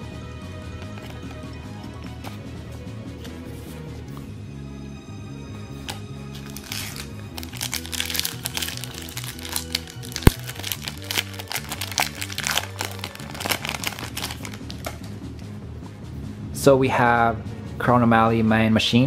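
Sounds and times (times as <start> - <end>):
background music: 0.0 - 19.0
foil wrapper crinkling and tearing: 6.4 - 15.0
foil wrapper snap: 6.4 - 15.1.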